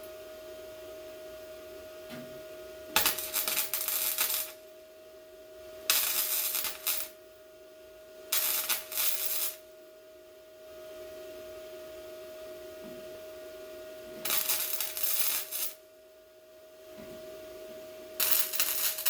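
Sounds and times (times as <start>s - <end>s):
welding crackling sizzle: 2.9s - 4.7s, 5.9s - 7.2s, 8.3s - 9.7s, 14.2s - 15.8s, 18.2s - 19.0s.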